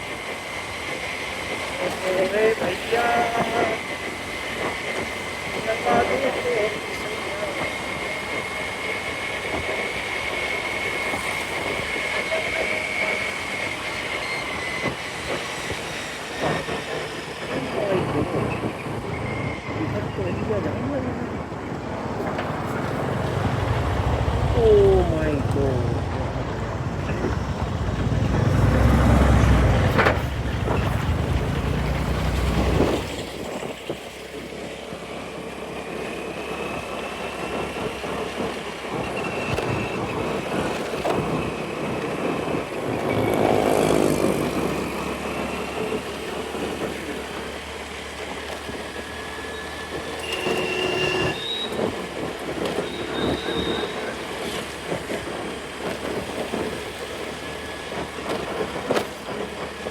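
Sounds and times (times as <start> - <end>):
traffic noise: 0.0 - 59.9
wind rumble on microphone: 17.5 - 34.1
scooter engine: 22.0 - 48.8.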